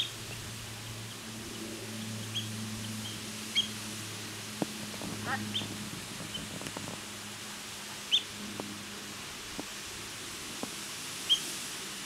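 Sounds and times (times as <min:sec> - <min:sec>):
steady background hiss: 0:00.0 - 0:12.0
high-pitched bird calls: 0:02.2 - 0:03.8, 0:08.1 - 0:08.3.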